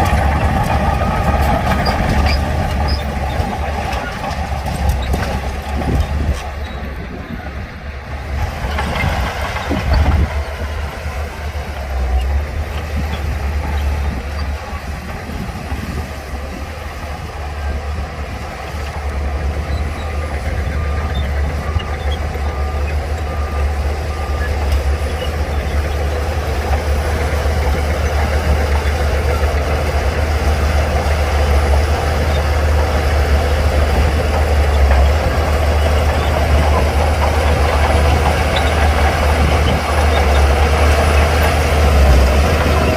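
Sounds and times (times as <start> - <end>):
heavy diesel machinery running: 0.0 - 42.9
reversing alarm beeping: 19.8 - 26.5.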